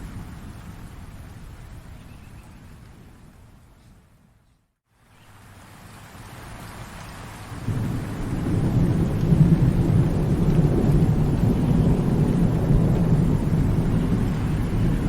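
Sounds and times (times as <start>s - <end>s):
rain hissing: 0.0s - 15.0s
rolling thunder: 7.6s - 15.0s.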